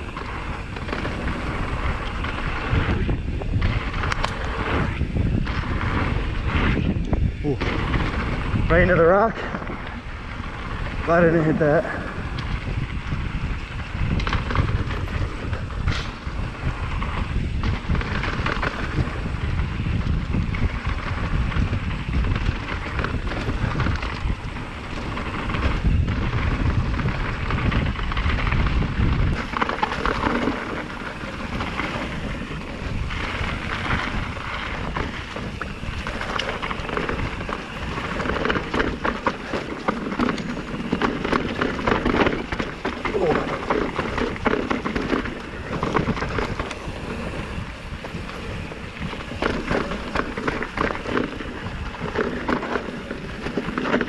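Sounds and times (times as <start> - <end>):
wind on microphone: 0.0 - 54.0
bike chain and frame rattling: 29.4 - 32.7, 33.4 - 54.0.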